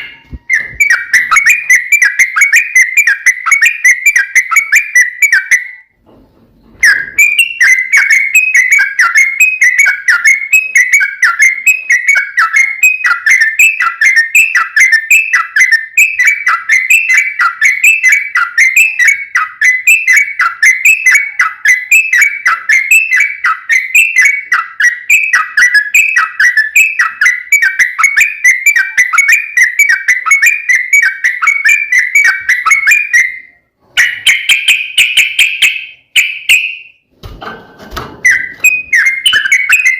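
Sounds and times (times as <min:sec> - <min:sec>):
bird whistling fast notes: 0:38.2 - 0:39.9.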